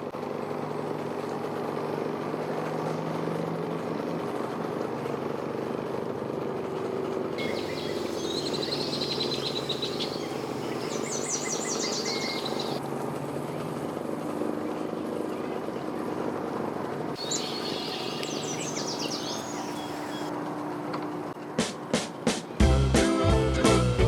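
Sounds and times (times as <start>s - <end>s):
boat engine running: 7.4s - 12.8s, 17.2s - 20.3s
songbird chirping: 7.4s - 12.8s, 17.2s - 20.3s.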